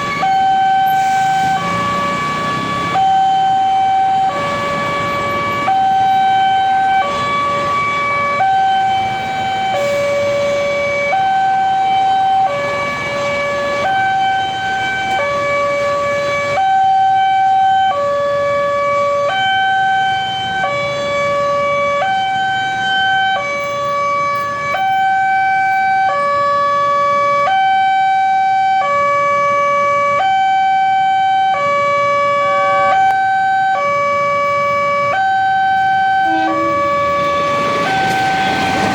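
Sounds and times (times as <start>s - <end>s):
level crossing two-tone alarm: 0.0s - 15.4s, 30.2s - 34.0s, 34.7s - 38.9s.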